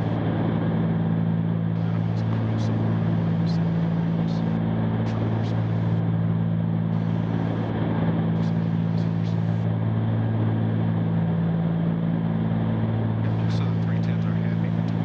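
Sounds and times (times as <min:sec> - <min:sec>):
aircraft engines droning in cabin: 0:00.0 - 0:15.0.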